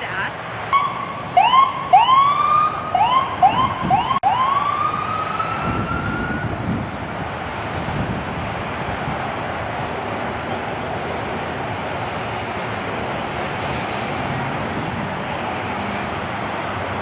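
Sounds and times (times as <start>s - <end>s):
traffic noise: 0.0s - 17.0s
siren whoops and wail: 0.7s - 6.8s.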